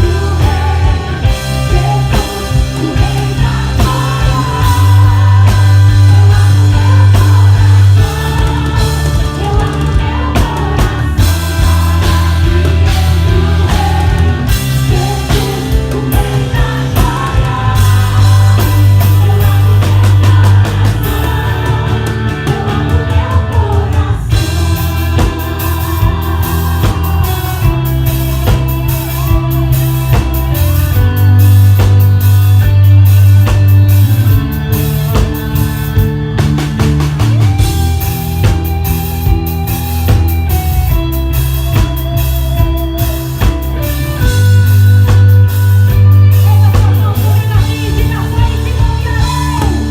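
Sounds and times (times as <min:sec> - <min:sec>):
person singing: 0:00.0 - 0:31.3, 0:46.0 - 0:49.9
bass guitar: 0:00.0 - 0:49.9
drum kit: 0:00.0 - 0:49.9
electric guitar: 0:00.0 - 0:49.9.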